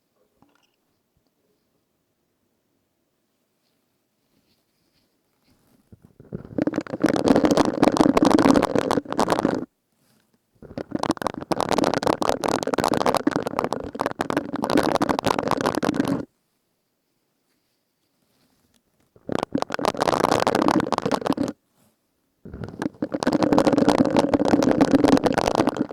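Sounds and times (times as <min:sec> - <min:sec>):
sponge rubbed crackling friction: 0:05.5 - 0:09.7, 0:10.6 - 0:16.3, 0:18.3 - 0:21.6, 0:22.5 - 0:25.9.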